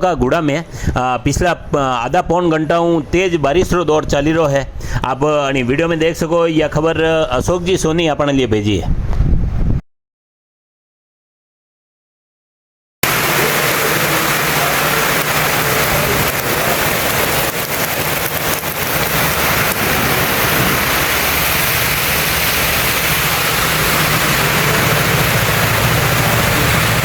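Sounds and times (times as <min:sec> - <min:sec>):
heavy rain pouring: 0:13.0 - 0:27.0.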